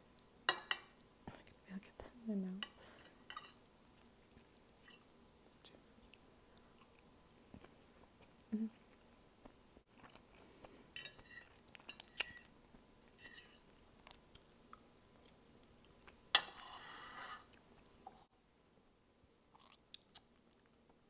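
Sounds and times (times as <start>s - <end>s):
fork clinking and scraping plate: 2.6s - 3.6s, 11.0s - 12.4s, 13.2s - 13.6s, 16.4s - 17.5s
chewing noodles: 6.0s - 16.3s.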